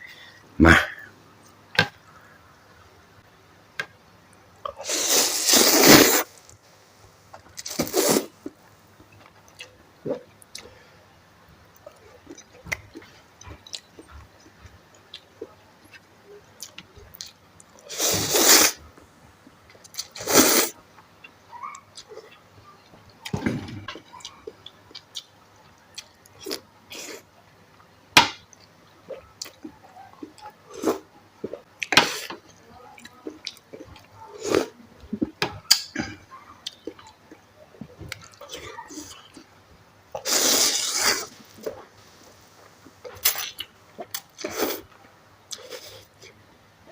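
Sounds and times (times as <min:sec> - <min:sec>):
noodle slurping: 0:04.8 - 0:06.4, 0:07.6 - 0:08.3, 0:17.9 - 0:18.8, 0:40.2 - 0:41.4
chewing with clicks and smacks: 0:09.0 - 0:10.7, 0:11.7 - 0:17.8, 0:21.0 - 0:26.6, 0:27.7 - 0:30.6, 0:31.4 - 0:34.2, 0:36.6 - 0:39.5.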